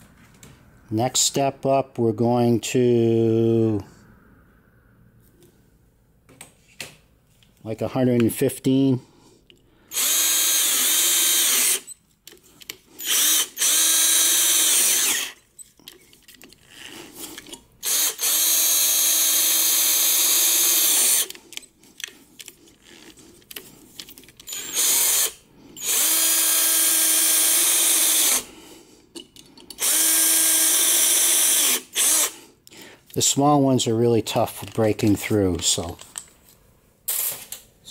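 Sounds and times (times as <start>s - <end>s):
electric drill boring into steel: 9.9s - 11.9s, 13.0s - 15.4s, 17.8s - 21.4s, 24.5s - 28.5s, 29.8s - 32.4s.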